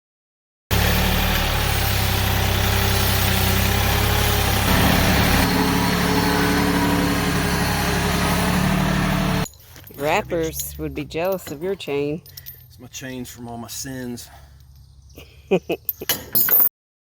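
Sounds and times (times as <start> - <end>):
engine running steadily: 0.7 - 10.3.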